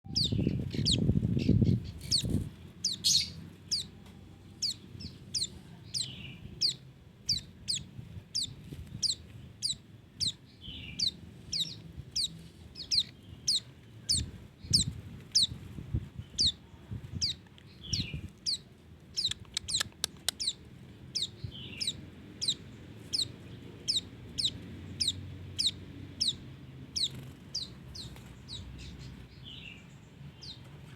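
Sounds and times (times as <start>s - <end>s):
bird chirping: 0.0s - 15.6s, 16.2s - 30.9s.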